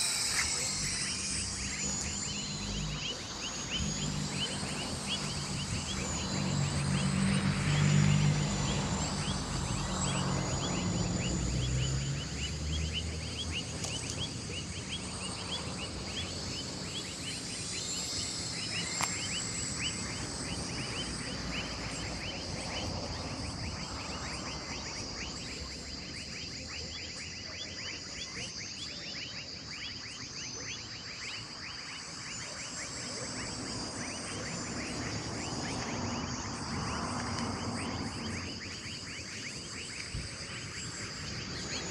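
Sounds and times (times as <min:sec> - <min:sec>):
low engine-like hum: 0:00.0 - 0:28.6, 0:32.3 - 0:41.9
continuous high-pitched buzz: 0:00.0 - 0:41.9.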